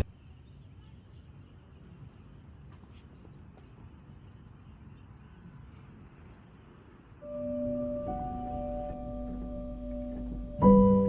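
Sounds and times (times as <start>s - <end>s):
bell-like music tone: 7.2s - 11.0s
faint low rumble: 7.3s - 11.0s.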